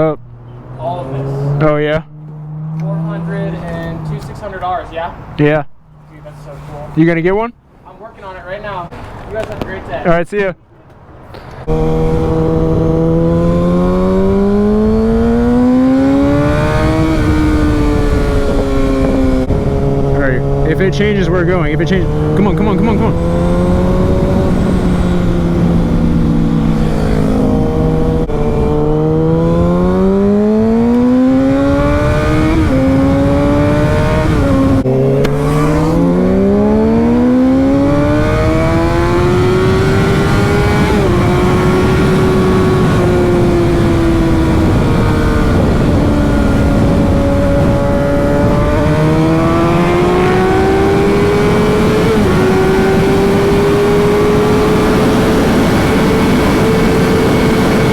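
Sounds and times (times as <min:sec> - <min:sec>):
motorcycle engine accelerating: 0:00.0 - 0:04.8, 0:11.6 - 0:57.9
wind rumble: 0:11.5 - 0:57.9.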